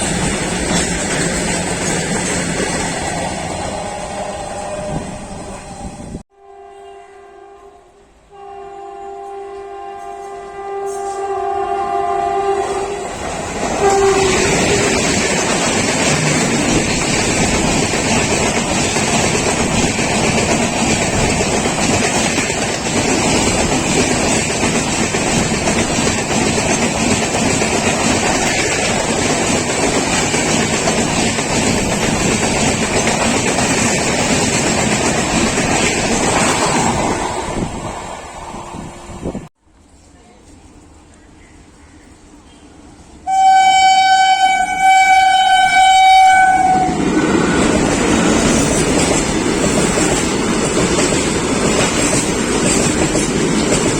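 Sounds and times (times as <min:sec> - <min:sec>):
freight train rumbling past: 0:00.0 - 0:39.5, 0:42.0 - 0:53.9
locomotive horn: 0:04.2 - 0:15.0, 0:43.3 - 0:47.7.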